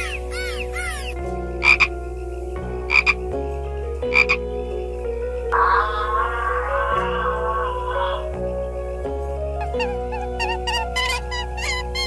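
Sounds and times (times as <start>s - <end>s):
dolphins chirping: 0.0s - 2.0s, 5.5s - 8.8s, 9.6s - 12.0s
background music: 0.0s - 12.0s.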